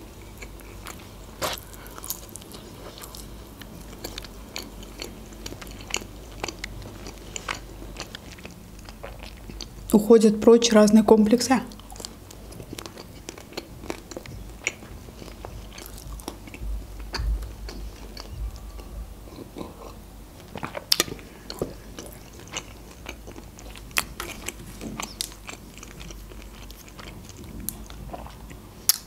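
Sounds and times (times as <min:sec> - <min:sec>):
chewing pizza: 0:00.0 - 0:10.0, 0:11.7 - 0:29.0.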